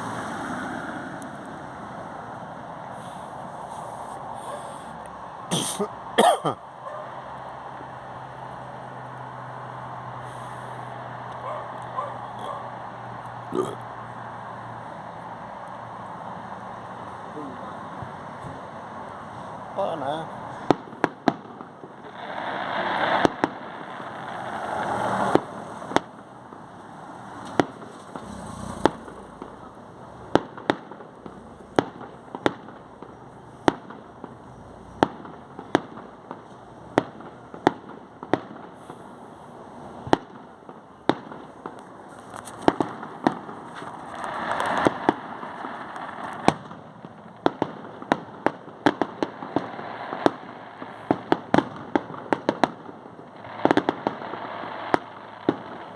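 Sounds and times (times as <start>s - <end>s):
hissing crackle of fireworks: 0.0s - 55.9s
fireworks bangs: 16.1s - 55.9s.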